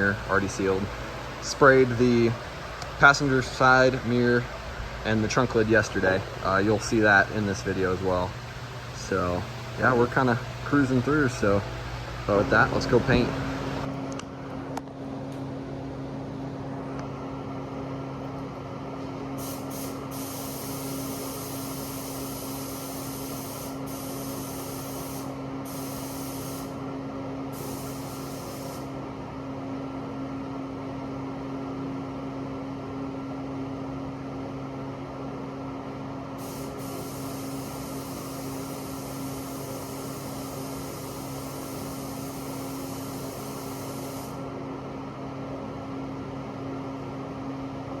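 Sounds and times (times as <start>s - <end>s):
fan humming: 0.0s - 30.2s, 35.1s - 46.2s
paint spray gun hissing: 19.4s - 26.8s, 27.6s - 28.9s, 36.4s - 44.4s.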